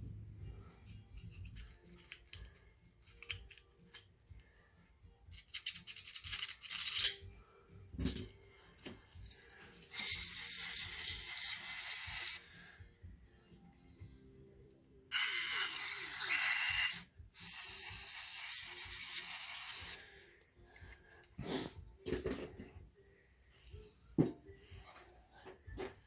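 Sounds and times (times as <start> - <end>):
parts clicking and knocking: 0.9 - 4.4, 22.0 - 22.8.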